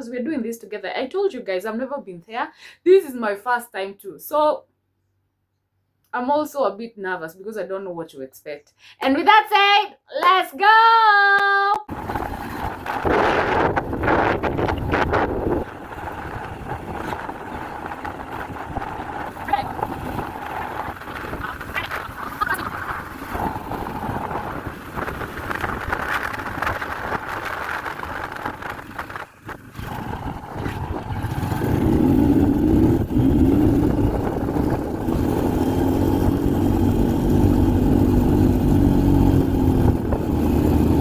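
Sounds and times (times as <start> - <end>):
vehicle engine drone: 11.9 - 41.0.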